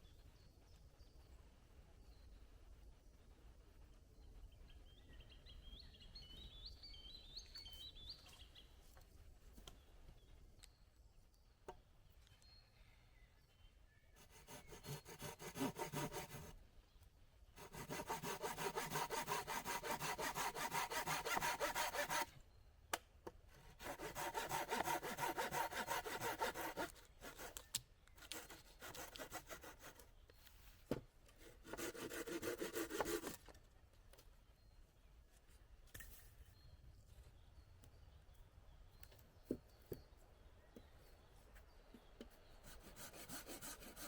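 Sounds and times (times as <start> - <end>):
hand saw cutting wood: 14.2 - 16.6, 17.6 - 22.3, 23.6 - 27.6, 28.2 - 30.0, 31.4 - 33.4, 42.8 - 44.0.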